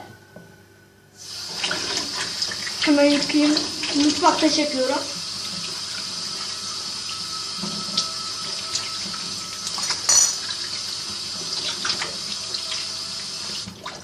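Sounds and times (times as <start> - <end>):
hands washing with splashes: 7.9 - 14.0.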